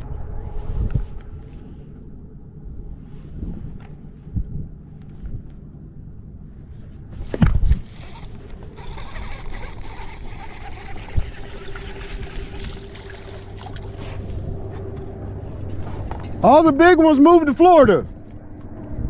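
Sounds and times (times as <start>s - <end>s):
electric trolling motor humming: 6.2s - 19.0s
water gurgling: 7.9s - 14.0s.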